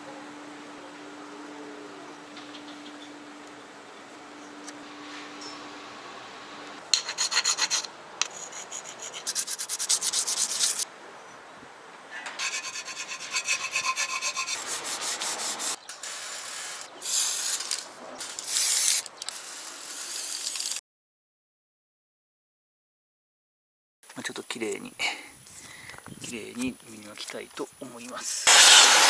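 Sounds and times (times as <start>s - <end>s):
hand sanding rubbing strokes: 7.0s - 10.8s, 12.4s - 20.8s, 28.4s - 29.0s.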